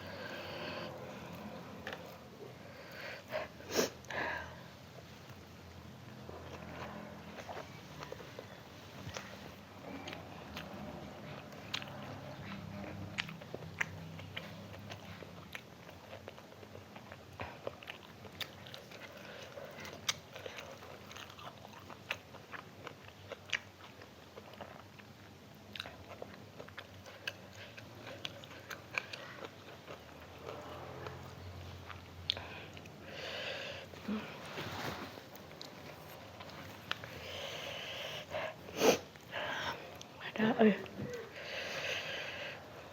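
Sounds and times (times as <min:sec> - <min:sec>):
chewing and biting food: 0:06.1 - 0:33.3.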